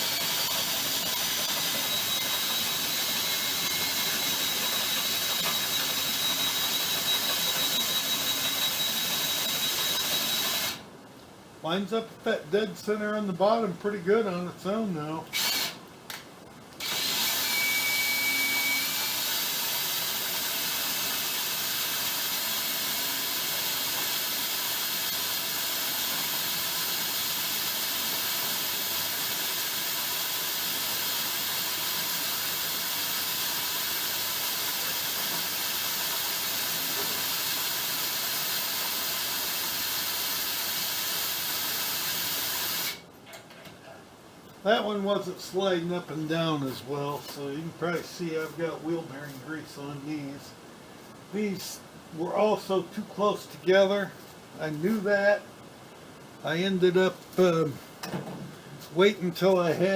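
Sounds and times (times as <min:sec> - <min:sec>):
steady even hiss: 0:43.9 - 0:59.9.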